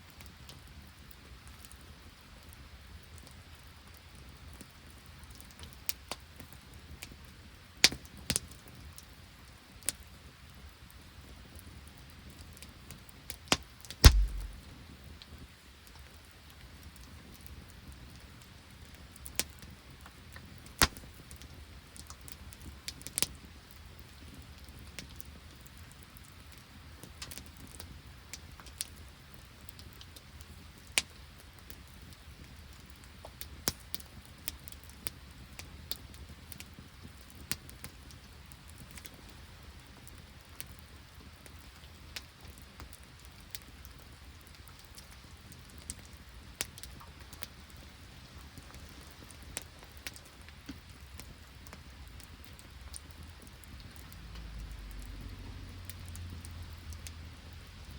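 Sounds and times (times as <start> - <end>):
faint steady hiss: 14.0 - 14.6, 39.2 - 57.9
rain and sleet dripping: 14.0 - 14.6, 20.6 - 57.9
sharp pops: 14.0 - 14.6.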